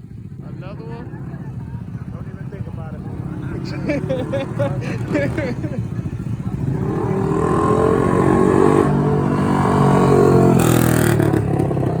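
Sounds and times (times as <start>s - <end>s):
vehicle engine revving: 6.2s - 12.0s.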